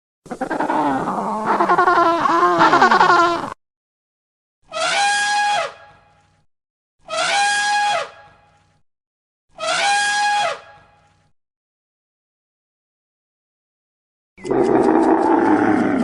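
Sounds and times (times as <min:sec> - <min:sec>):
animal call: 0:00.3 - 0:03.5, 0:14.4 - 0:16.0.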